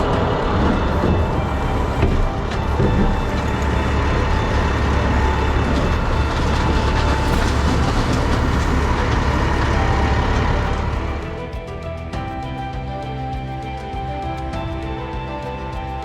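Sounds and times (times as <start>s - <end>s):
diesel engine rumbling: 0.0s - 12.4s.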